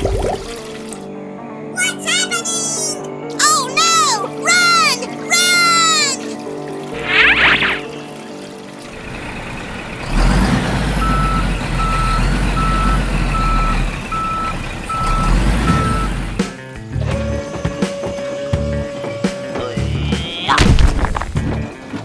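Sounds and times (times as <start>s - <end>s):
background music: 0.0s - 22.0s
truck engine running: 8.8s - 20.2s
reversing alarm beeping: 10.9s - 16.4s.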